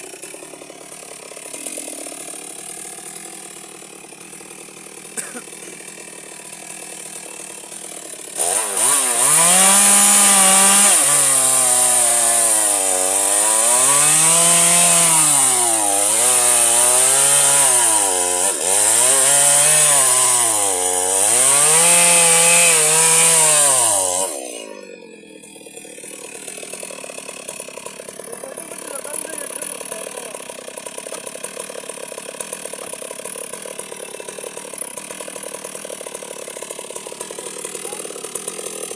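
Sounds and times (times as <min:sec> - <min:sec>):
electric chainsaw cutting wood: 0:00.0 - 0:38.9.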